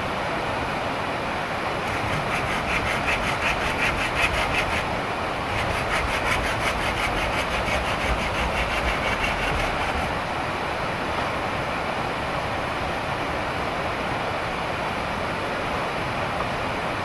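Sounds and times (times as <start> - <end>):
hand saw cutting wood: 1.8 - 10.2.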